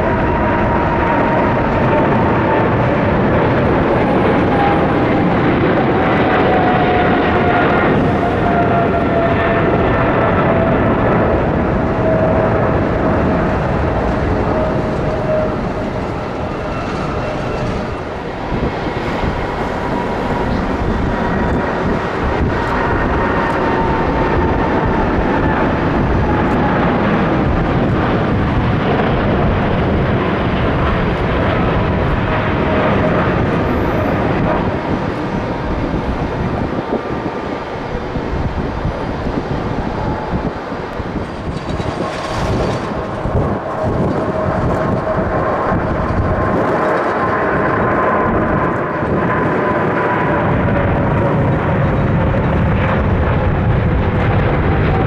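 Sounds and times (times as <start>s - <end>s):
jet airliner engines rumbling: 0.0s - 55.0s
jet engine whine: 0.0s - 55.0s.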